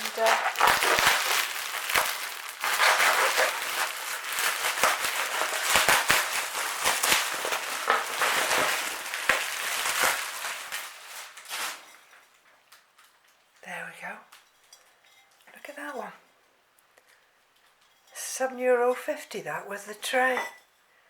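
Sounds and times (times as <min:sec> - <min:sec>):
packing material rustling and crunching: 0:00.0 - 0:12.4.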